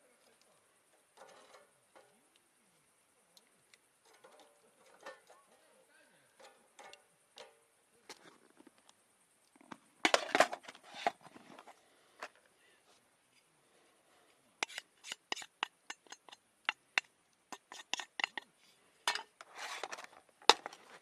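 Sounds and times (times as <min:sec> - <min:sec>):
sharp clicks and taps: 0:14.6 - 0:18.5.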